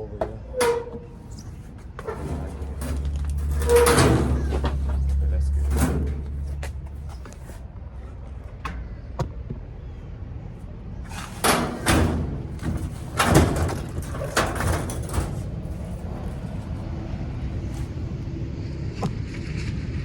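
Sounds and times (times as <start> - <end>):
heavy household items banging: 0.0 - 7.2, 11.1 - 17.8
steady low rumble: 1.0 - 20.0.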